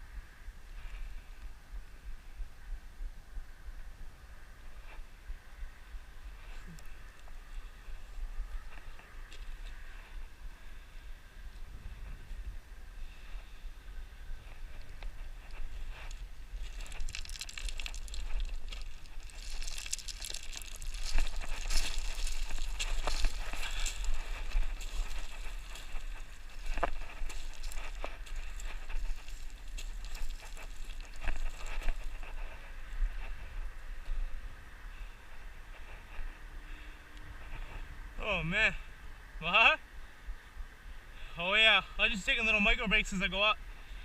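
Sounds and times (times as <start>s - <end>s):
low wind rumble on microphone: 0.0s - 38.2s
footsteps on loose gravel: 14.5s - 34.2s.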